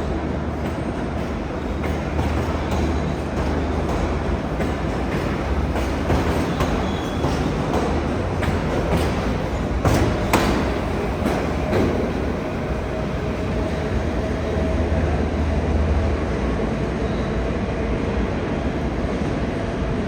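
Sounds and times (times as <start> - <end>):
train wheels clacking over rail joints: 0.0 - 14.2
steady train rumble: 0.0 - 20.0.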